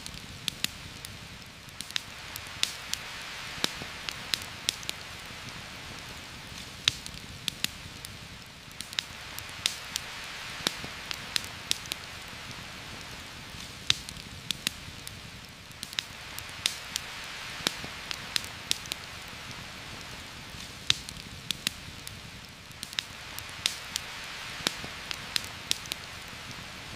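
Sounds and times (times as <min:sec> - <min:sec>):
campfire crackling and popping: 0:00.0 - 0:26.9
heavy rain hiss: 0:00.0 - 0:26.9.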